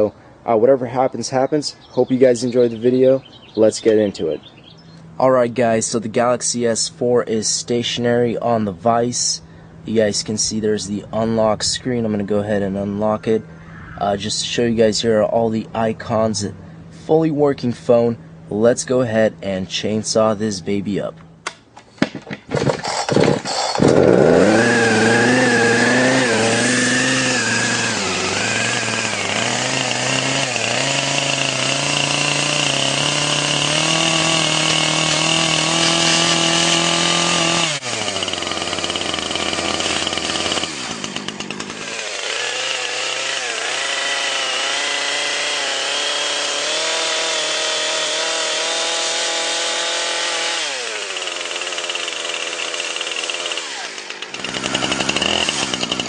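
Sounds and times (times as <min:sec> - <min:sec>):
chainsaw revving: 0:22.4 - 0:56.0.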